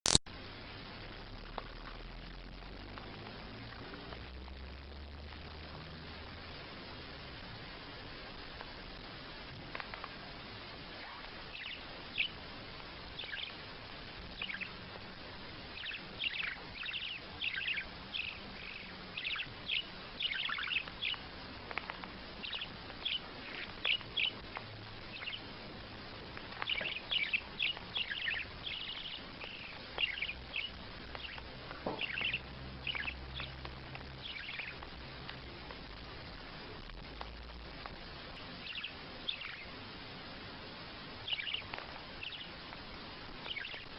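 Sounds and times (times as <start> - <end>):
small bird chirping: 10.9 - 35.7, 38.3 - 40.0, 41.1 - 43.9.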